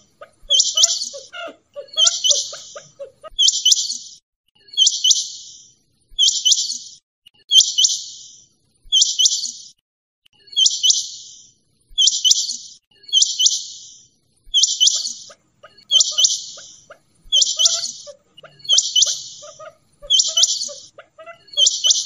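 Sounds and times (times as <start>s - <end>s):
quail calling: 0.0s - 3.9s, 14.6s - 22.0s.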